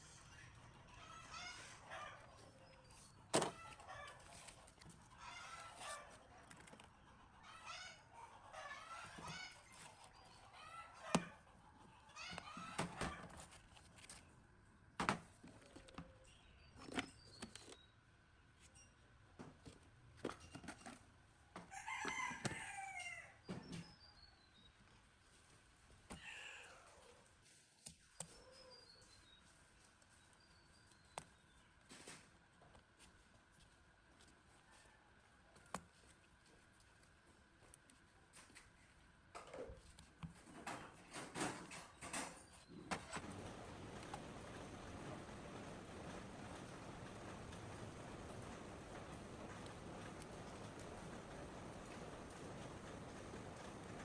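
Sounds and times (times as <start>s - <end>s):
chickens clucking: 0.0s - 13.5s.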